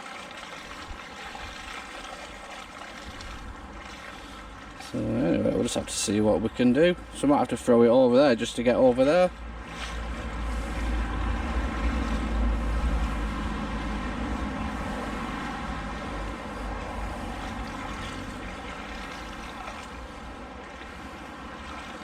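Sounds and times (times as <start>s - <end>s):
river rushing: 9.1s - 22.0s
low rumble: 9.4s - 19.4s.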